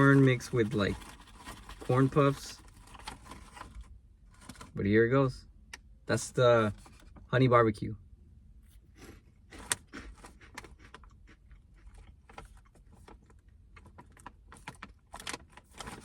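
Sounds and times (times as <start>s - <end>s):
crunchy snack being chewed: 8.9s - 14.2s.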